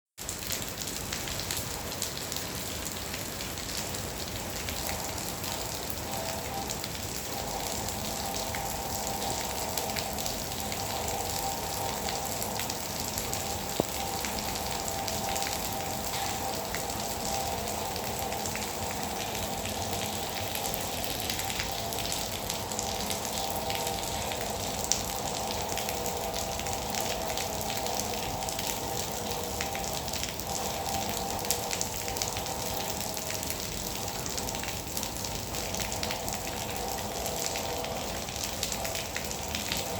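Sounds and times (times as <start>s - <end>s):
faint steady hum: 4.4s - 39.9s.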